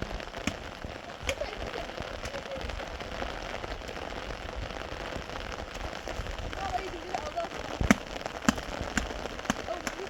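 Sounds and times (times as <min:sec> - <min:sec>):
heavy rain falling: 0:00.0 - 0:10.0
sharp taps: 0:00.1 - 0:02.7, 0:07.7 - 0:10.0.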